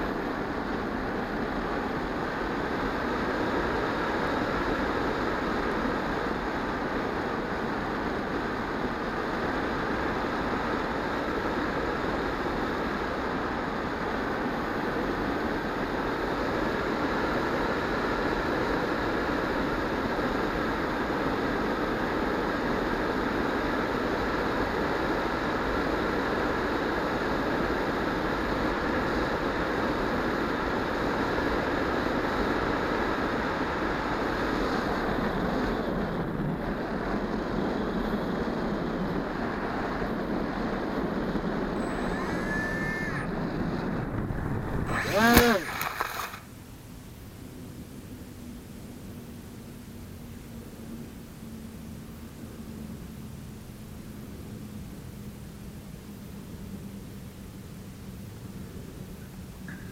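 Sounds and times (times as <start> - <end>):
wind noise: 0.0 - 46.6
small electric motor whine: 41.3 - 46.4.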